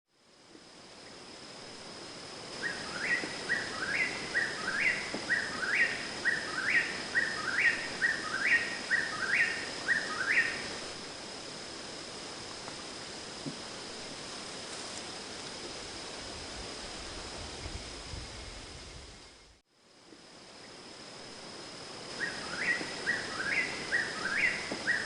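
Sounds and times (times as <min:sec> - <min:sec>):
high-pitched whine: 0:00.1 - 0:25.0
steady hiss: 0:00.1 - 0:25.0
bird calling rising notes: 0:02.6 - 0:10.8, 0:22.2 - 0:25.0.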